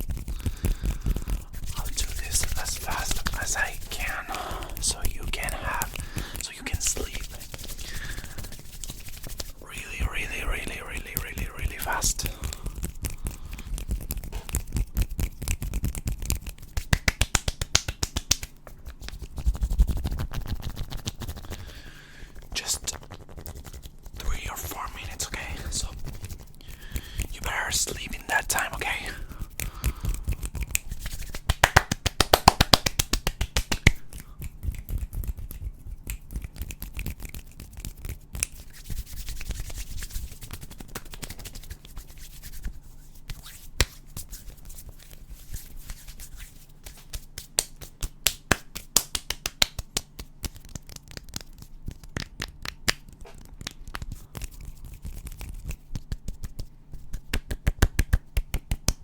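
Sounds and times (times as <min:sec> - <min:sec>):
soft rubbing and scratching: 0:00.0 - 0:59.0
finger clicks and snaps: 0:10.1 - 0:21.6, 0:25.4 - 0:42.0, 0:46.8 - 0:59.0.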